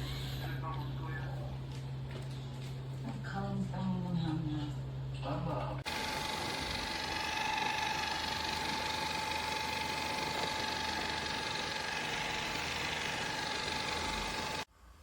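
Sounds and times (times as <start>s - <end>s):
robot vacuum suction motor whine: 5.9s - 14.7s.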